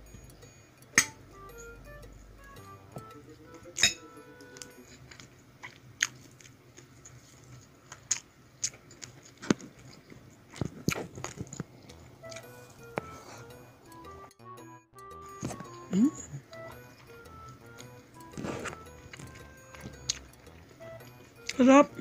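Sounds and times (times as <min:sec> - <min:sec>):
person chewing and mouth sounds: 0:05.0 - 0:13.5, 0:15.4 - 0:22.0.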